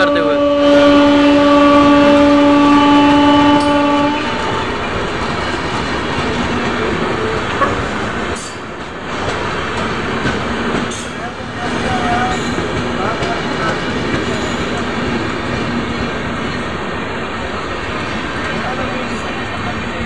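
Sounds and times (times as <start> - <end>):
train horn blast: 0.0 - 4.8
train wheels rumbling on rails: 0.0 - 20.0.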